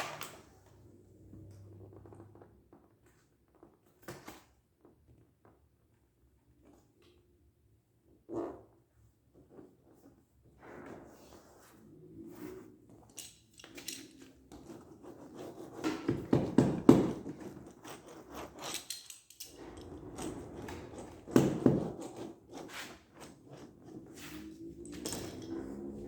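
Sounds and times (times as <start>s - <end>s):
hands knocking and rubbing rubber: 15.6s - 18.0s, 20.4s - 23.7s.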